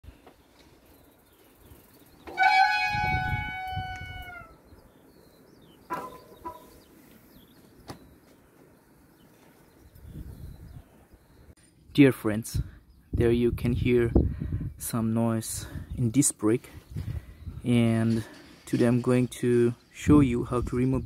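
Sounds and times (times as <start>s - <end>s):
disc brake squealing: 2.3s - 4.5s.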